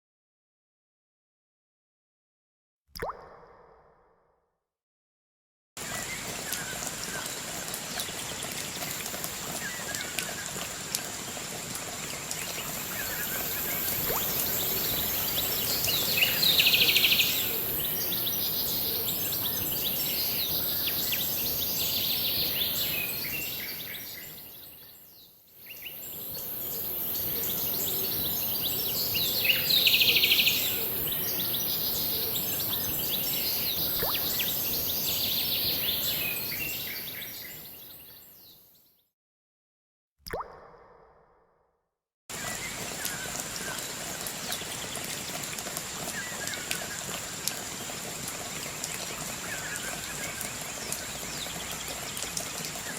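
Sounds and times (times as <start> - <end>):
falling water: 5.8 - 25.0, 25.6 - 37.8, 42.3 - 52.9
birds chirping: 12.2 - 25.1.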